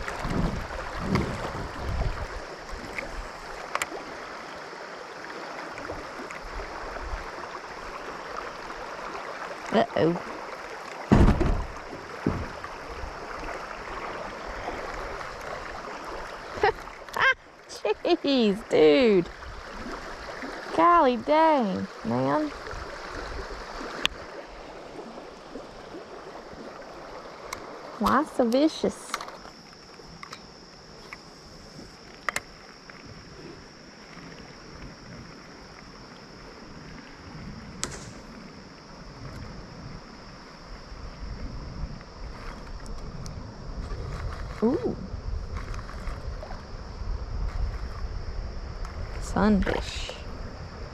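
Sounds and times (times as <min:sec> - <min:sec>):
wind rumble on microphone: 0:00.0 - 0:04.2, 0:05.8 - 0:10.4, 0:11.1 - 0:17.4, 0:18.2 - 0:28.3, 0:30.0 - 0:50.9
river water rushing: 0:00.0 - 0:20.8
insects buzzing: 0:00.0 - 0:50.9
low knock on kayak: 0:11.1 - 0:12.6
sharp click: 0:37.8 - 0:38.2.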